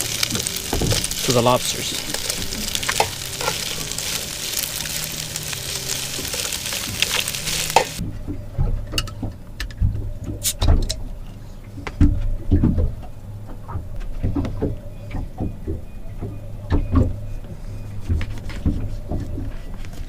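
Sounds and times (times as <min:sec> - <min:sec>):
food sizzling in a pan: 0:00.0 - 0:08.0
low rumble: 0:00.0 - 0:10.4.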